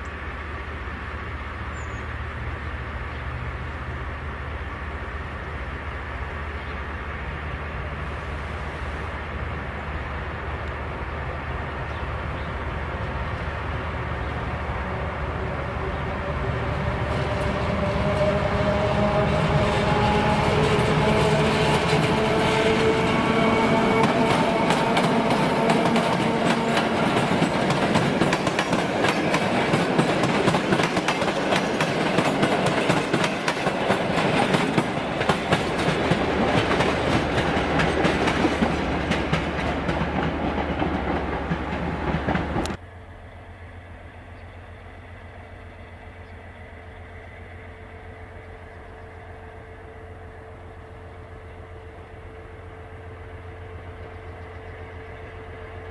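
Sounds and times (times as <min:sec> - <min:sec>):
train wheels clattering: 0:11.8 - 0:42.8.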